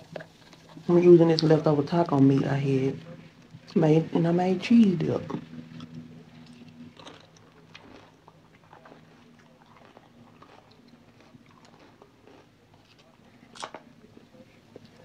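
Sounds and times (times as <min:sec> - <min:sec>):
chewing chips: 0:05.3 - 0:15.0.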